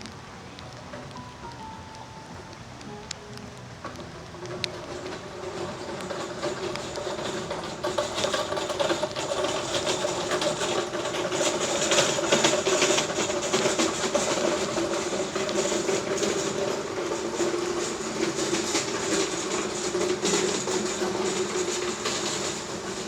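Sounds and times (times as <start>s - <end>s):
heavy rain pattering: 0.0s - 23.0s.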